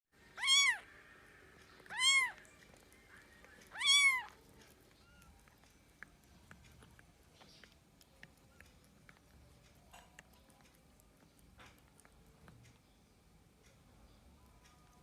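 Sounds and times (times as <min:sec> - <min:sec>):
cat meowing: 0:00.4 - 0:00.9, 0:01.9 - 0:02.8, 0:03.6 - 0:05.6.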